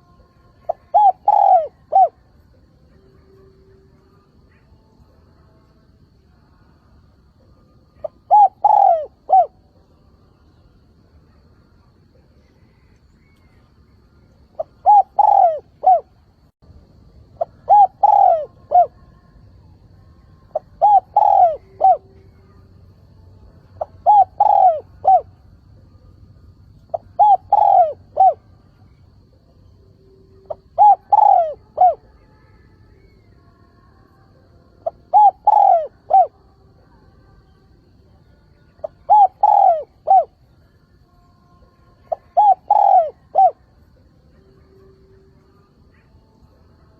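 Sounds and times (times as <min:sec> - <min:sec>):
dove cooing: 0:00.0 - 0:02.3, 0:07.9 - 0:09.7, 0:14.5 - 0:16.5, 0:17.4 - 0:19.1, 0:20.5 - 0:22.5, 0:23.8 - 0:25.4, 0:26.9 - 0:29.5, 0:30.4 - 0:32.2, 0:34.8 - 0:36.4, 0:38.8 - 0:40.4, 0:42.0 - 0:43.7.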